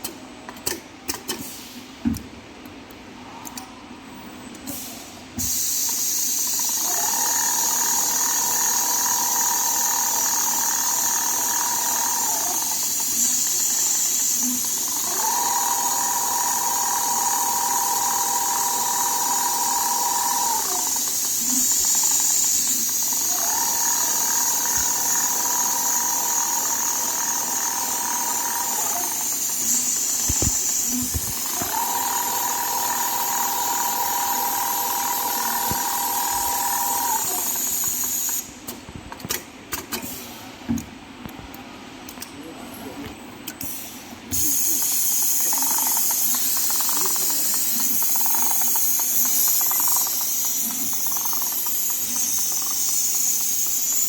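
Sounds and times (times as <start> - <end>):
sewing machine motor whine: 5.9 - 38.5, 44.3 - 54.0.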